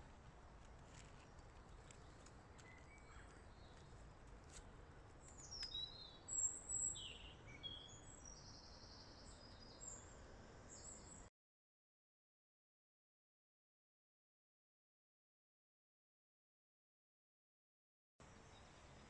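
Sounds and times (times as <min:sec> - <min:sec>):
low outdoor background noise: 0:00.0 - 0:11.3, 0:18.2 - 0:19.0
faint birdsong chirps: 0:00.8 - 0:11.3, 0:18.2 - 0:19.0.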